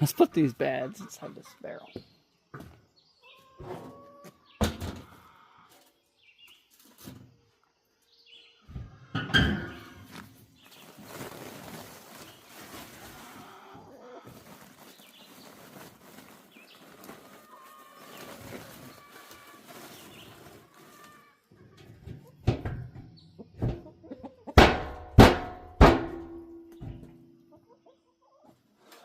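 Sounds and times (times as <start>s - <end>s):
chickens clucking: 0.0s - 6.0s, 8.6s - 25.0s, 26.2s - 29.0s
knocks and bangs on barrel: 24.6s - 27.1s.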